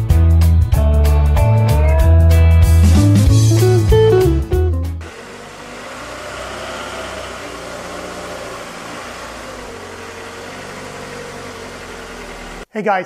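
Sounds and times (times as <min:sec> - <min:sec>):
blues electric guitar music: 0:00.0 - 0:05.0
car engine idling: 0:05.0 - 0:12.7.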